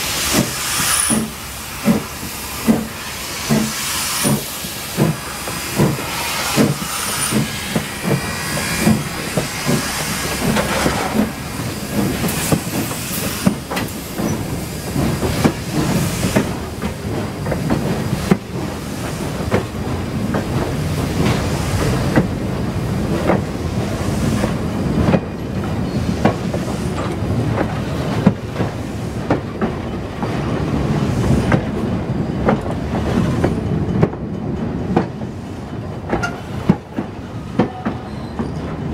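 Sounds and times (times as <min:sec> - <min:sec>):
steam hissing: 0:00.0 - 0:29.3
train rumbling on rails: 0:00.0 - 0:38.9
wheels clicking over rail joints: 0:31.5 - 0:38.9.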